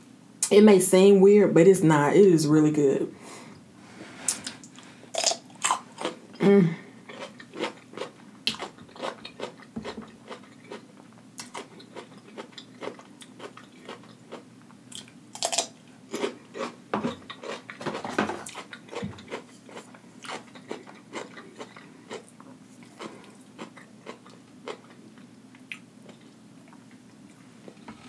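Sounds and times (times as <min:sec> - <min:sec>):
person crunching cucumber: 0:04.4 - 0:06.4, 0:07.0 - 0:26.8.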